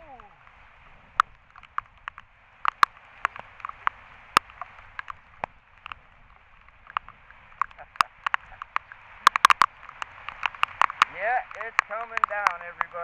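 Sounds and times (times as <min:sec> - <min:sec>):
raindrops ticking on camera: 0:00.0 - 0:13.0
heavy rain hissing: 0:02.3 - 0:13.0.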